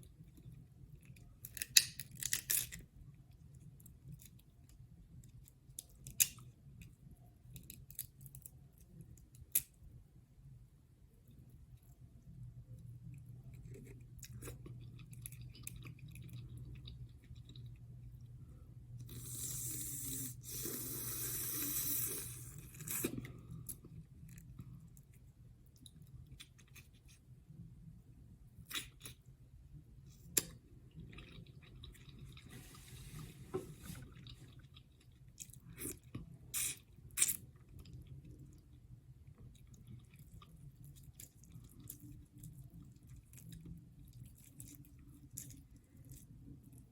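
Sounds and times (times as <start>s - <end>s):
low steady hum: 0.0s - 46.9s
close chewing with wet clicks: 34.2s - 46.9s.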